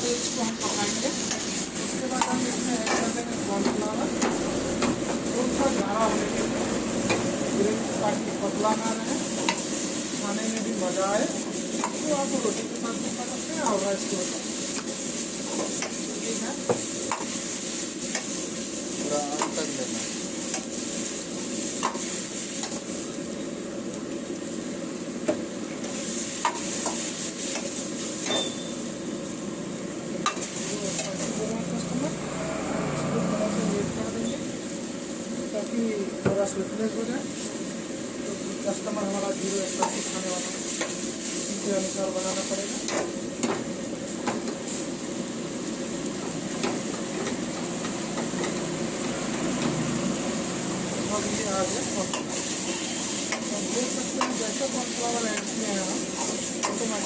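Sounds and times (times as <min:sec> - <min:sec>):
gravy sizzling in a pan: 0:00.0 - 0:57.0.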